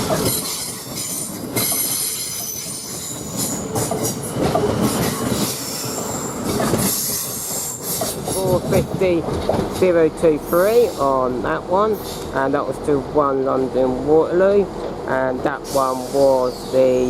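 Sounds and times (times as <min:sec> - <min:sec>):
train rumbling and clattering: 0:00.0 - 0:17.0
train wheels squealing: 0:00.1 - 0:08.2, 0:15.7 - 0:17.0.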